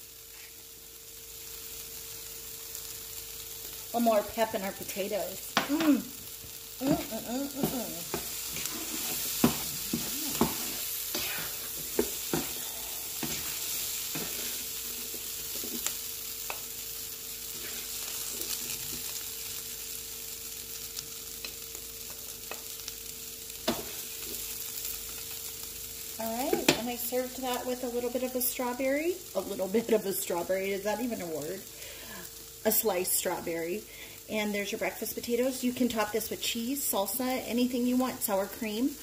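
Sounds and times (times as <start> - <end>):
vegetables sizzling in a skillet: 0.0 - 39.0
spatula scraping a pan: 6.9 - 16.6, 17.4 - 19.2
spatula tapping a pan: 7.6 - 8.4, 9.4 - 10.7, 11.8 - 12.6.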